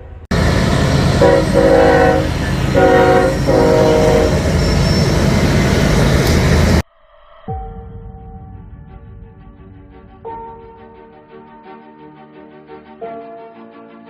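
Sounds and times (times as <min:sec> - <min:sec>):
train rumbling past: 0:00.0 - 0:06.8
train air horn blasts: 0:00.8 - 0:05.1.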